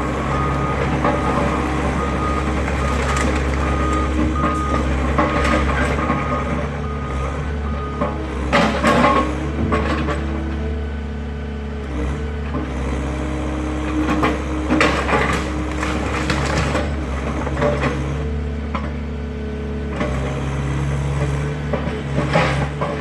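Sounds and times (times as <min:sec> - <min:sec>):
excavator diesel engine running: 0:00.0 - 0:23.0
wood cracking and crashing: 0:00.2 - 0:06.4, 0:14.8 - 0:17.0.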